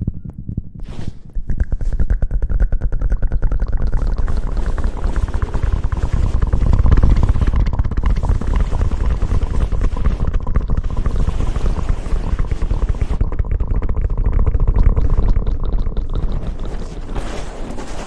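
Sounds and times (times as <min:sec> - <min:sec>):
low rumble: 0:00.0 - 0:18.0
rapid crackles: 0:00.4 - 0:18.0
rubbing and rustling on microphone: 0:00.8 - 0:02.4, 0:03.9 - 0:13.4, 0:15.9 - 0:18.0.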